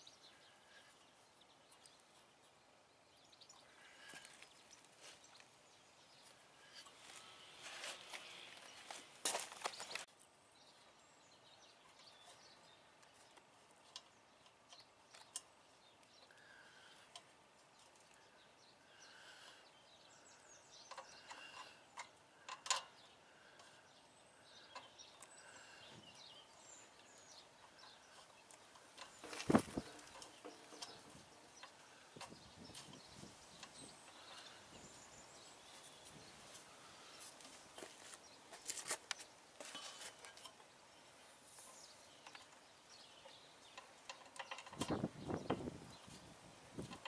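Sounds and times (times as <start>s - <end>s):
sharp clicks and knocks: 43.2s - 45.7s.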